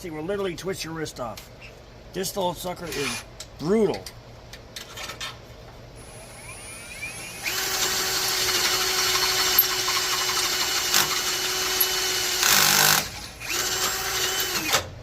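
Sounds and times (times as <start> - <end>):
battery drill cutting steel: 6.0 - 14.8.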